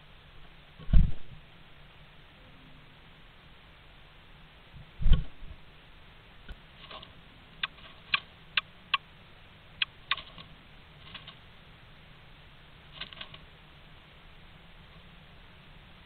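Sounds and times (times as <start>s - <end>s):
bird clicking and tapping in nest box: 6.8s - 9.0s, 9.8s - 11.4s, 12.9s - 13.4s.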